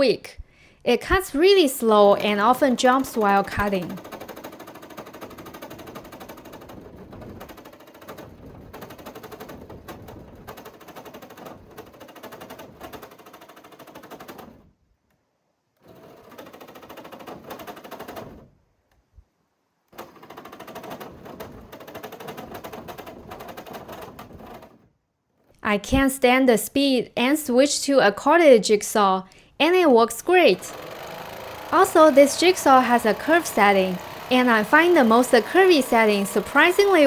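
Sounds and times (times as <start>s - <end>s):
jigsaw cutting through metal: 1.4s - 14.7s, 15.8s - 18.5s, 19.9s - 24.8s, 30.2s - 37.0s.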